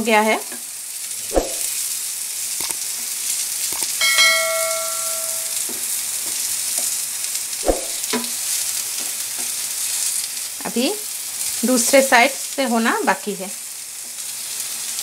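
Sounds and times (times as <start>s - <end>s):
food sizzling in oil: 0.0s - 15.0s
bell-like ding: 3.9s - 5.7s.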